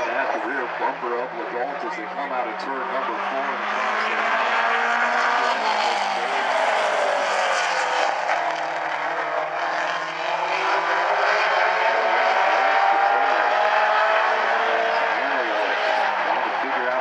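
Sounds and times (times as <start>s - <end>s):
race car engines passing: 0.0s - 17.0s.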